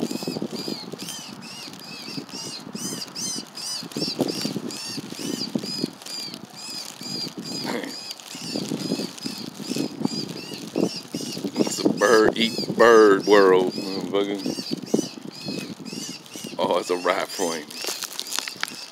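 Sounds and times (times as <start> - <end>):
bird chirping: 0.0 - 18.9
low rustling noise: 0.0 - 18.9.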